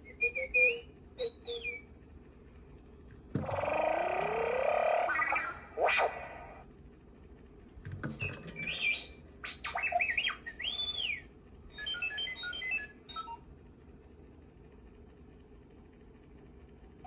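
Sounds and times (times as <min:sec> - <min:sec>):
robot beeps and whistles: 0:00.0 - 0:01.8, 0:03.4 - 0:06.6, 0:08.5 - 0:11.2
toy speaker clicks: 0:03.4 - 0:05.2.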